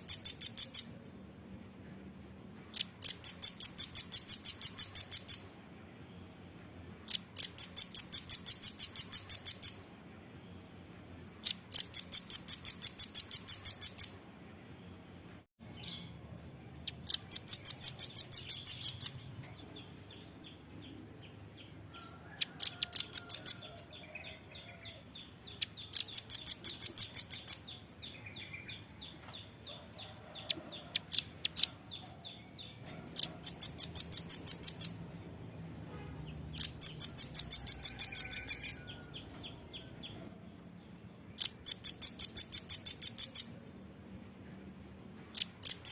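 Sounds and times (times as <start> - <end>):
nuthatch chipping calls: 0.0 - 0.9, 16.9 - 19.2, 22.4 - 27.8, 33.1 - 35.0, 36.5 - 39.2, 41.4 - 43.6, 45.3 - 45.9.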